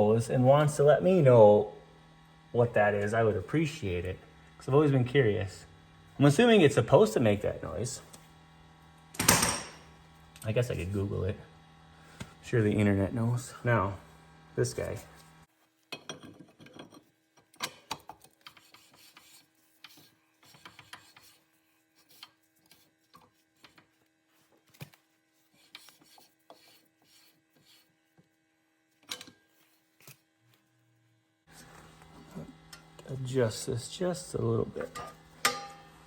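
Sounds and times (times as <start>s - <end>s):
metal tools clicking and scraping: 34.8s - 35.8s.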